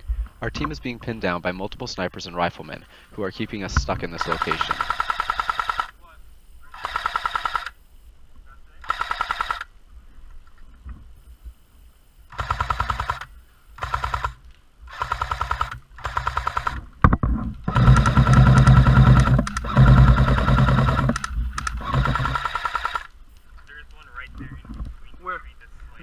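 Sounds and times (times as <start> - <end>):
airsoft gun firing bursts: 4.1 - 6.0, 6.7 - 7.8, 8.8 - 9.7, 12.3 - 16.8, 17.6 - 23.1
gearbox low hum: 16.8 - 22.6.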